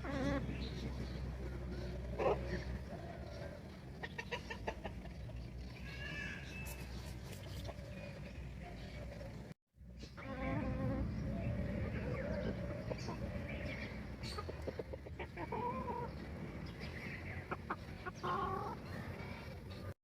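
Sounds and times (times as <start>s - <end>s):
chickens clucking: 0.0s - 5.8s, 10.2s - 20.0s.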